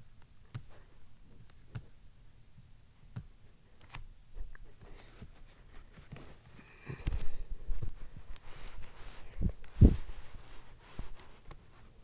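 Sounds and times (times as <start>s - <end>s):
soft rustling: 4.3s - 12.0s.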